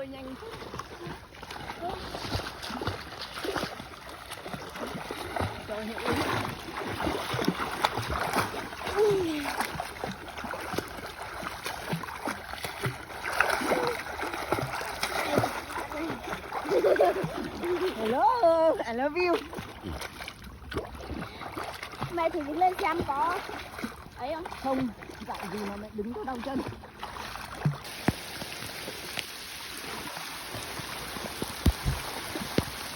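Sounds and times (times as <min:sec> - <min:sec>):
splashing from swimming: 0:00.0 - 0:32.9
small sharp splats: 0:00.5 - 0:17.9, 0:30.5 - 0:32.9
heavy rain falling on water: 0:05.1 - 0:16.9, 0:27.8 - 0:32.9.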